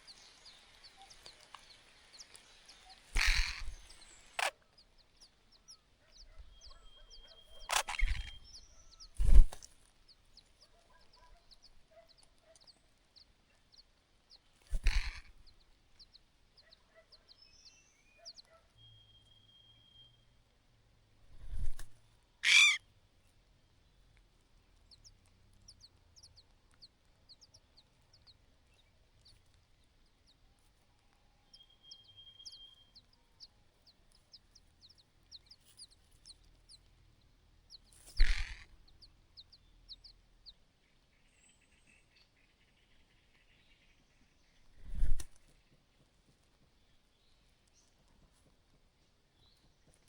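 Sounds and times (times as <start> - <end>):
birds chirping: 0.0 - 20.4, 21.3 - 45.8
high steady bird whistle: 31.6 - 33.0.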